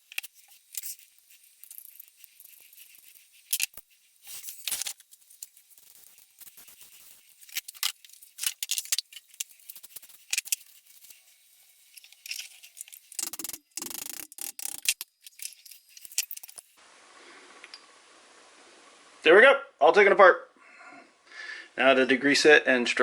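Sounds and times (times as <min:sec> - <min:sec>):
metal parts clinking and rattling: 0:00.0 - 0:11.1, 0:11.8 - 0:16.8.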